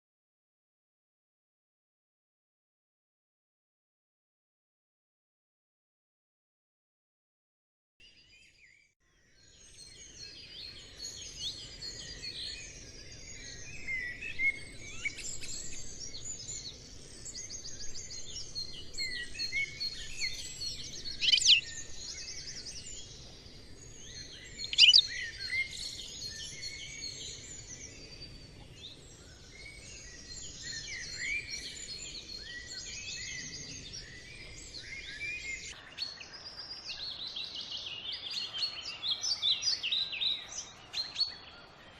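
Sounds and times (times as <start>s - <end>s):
songbirds chirping and trilling: 8.0s - 41.9s
loud sharp bird calls: 19.0s - 22.7s, 24.2s - 27.4s.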